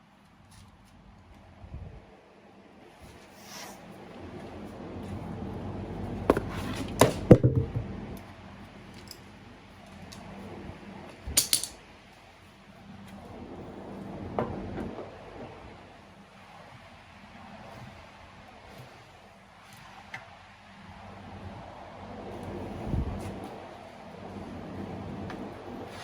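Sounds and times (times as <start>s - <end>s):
metal tools clanking: 11.4s - 11.8s.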